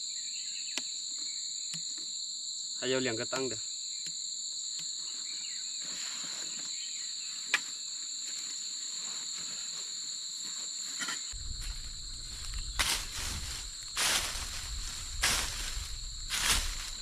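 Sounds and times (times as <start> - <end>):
insects trilling: 0.0 - 17.0
low rumble: 11.4 - 17.0
rustling: 11.4 - 17.0.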